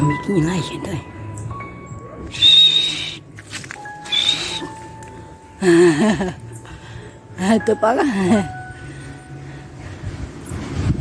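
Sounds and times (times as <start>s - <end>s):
background music with held notes: 0.0s - 11.0s
whistled animal call: 2.3s - 3.3s, 4.0s - 4.8s.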